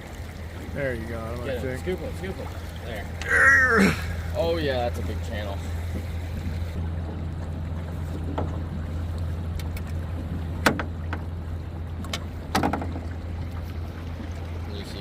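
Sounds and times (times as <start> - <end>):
low hum on a boat: 0.0 - 15.0
knocks on the hull: 10.6 - 11.3, 12.5 - 13.1.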